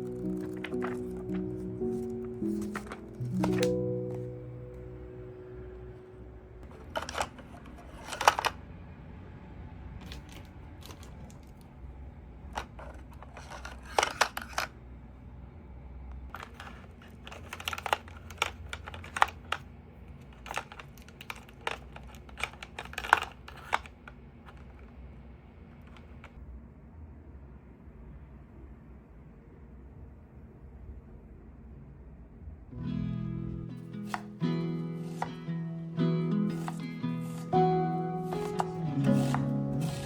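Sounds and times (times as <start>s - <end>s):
objects being handled: 0.0s - 4.8s, 6.6s - 8.6s, 10.0s - 11.7s, 12.4s - 14.8s, 16.3s - 25.0s, 33.9s - 35.5s, 36.5s - 40.0s.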